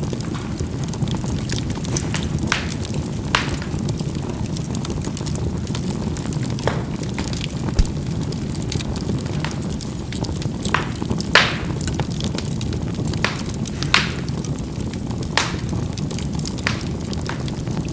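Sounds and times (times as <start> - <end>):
charcoal fire rushing: 0.0 - 17.9
coals popping: 0.0 - 17.9.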